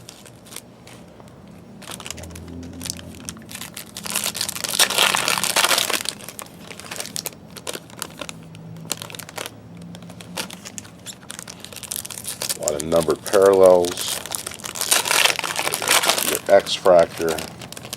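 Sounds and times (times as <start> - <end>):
foil wrappers crinkling: 0.0 - 17.9.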